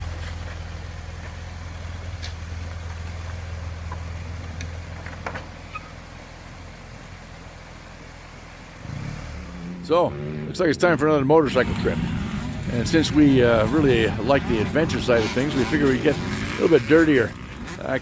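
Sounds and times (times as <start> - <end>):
engine idling: 0.0 - 9.8.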